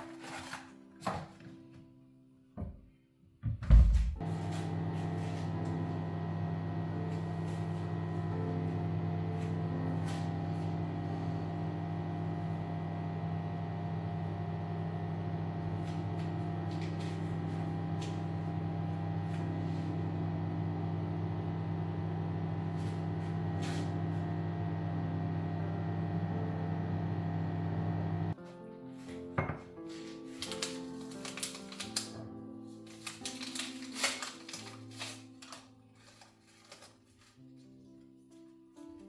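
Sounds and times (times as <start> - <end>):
machine humming: 4.2 - 28.4.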